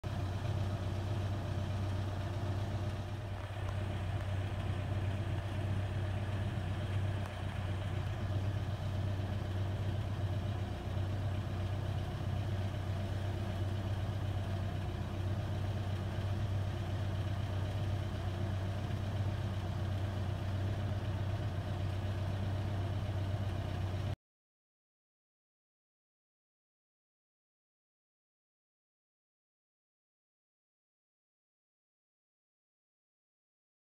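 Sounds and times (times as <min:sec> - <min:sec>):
engine idling hum: 0:00.0 - 0:24.2.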